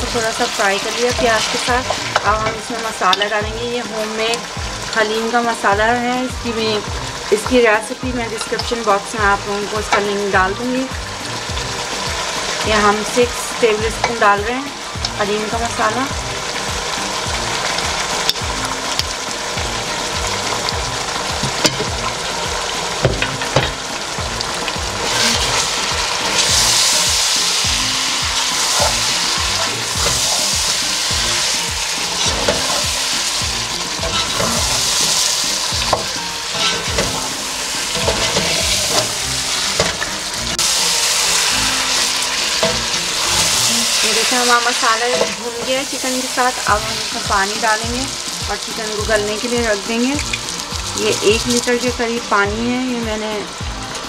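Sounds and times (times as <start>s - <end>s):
chicken sizzling in hot oil: 0.0s - 54.0s
spatula knocking on pot: 21.4s - 22.0s, 23.0s - 23.8s
wooden spatula scraping a pot: 34.0s - 35.0s, 35.8s - 37.3s.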